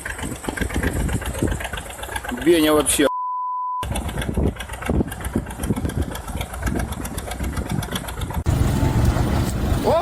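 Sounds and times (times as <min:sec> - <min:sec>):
censor bleep: 0:03.1 - 0:03.8
rough rumbling noise with crackle: 0:03.8 - 0:10.0.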